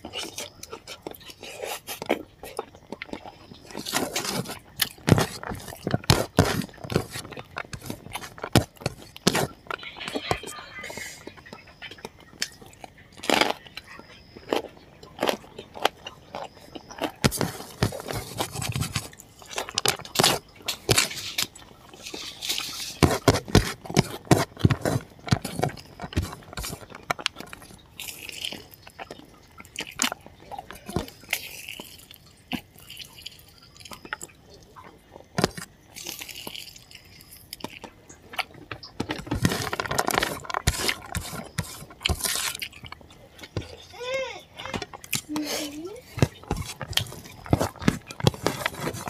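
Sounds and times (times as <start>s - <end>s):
crunching and wet chewing: 0.0s - 49.0s.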